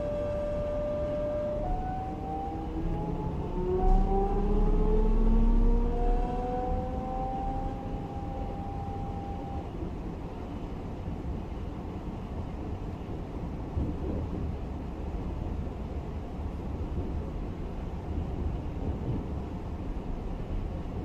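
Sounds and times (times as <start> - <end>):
electric train motors whining: 1.6 - 9.6
low rumble: 2.7 - 10.0.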